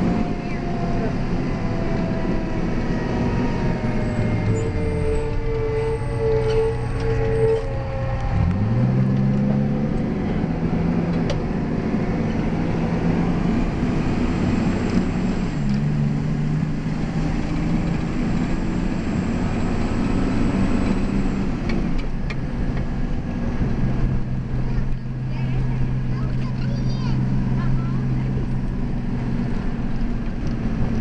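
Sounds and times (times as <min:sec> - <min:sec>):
diesel engine accelerating: 0:00.0 - 0:31.0
road noise: 0:00.0 - 0:31.0.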